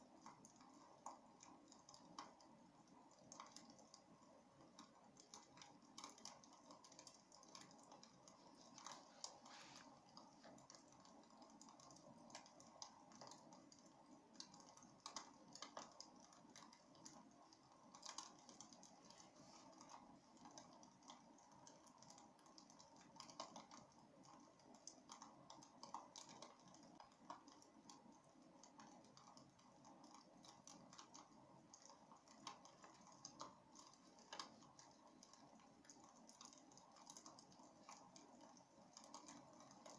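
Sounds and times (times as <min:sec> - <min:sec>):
low steady fire hiss: 0:00.0 - 0:39.9
wood crackling in fireplace: 0:00.0 - 0:39.9.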